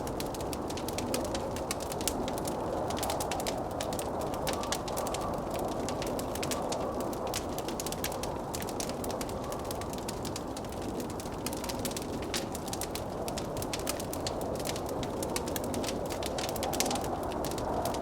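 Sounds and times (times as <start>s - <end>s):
blizzard wind rushing: 0.0s - 18.0s
wood fire crackling and popping: 0.0s - 18.0s.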